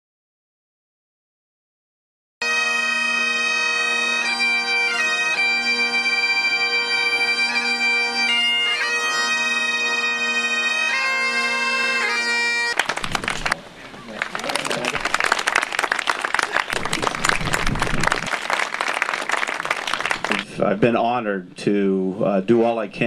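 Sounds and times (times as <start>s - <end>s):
bagpipe drone: 2.4s - 12.8s
bagpipes playing slow melody: 2.4s - 12.8s.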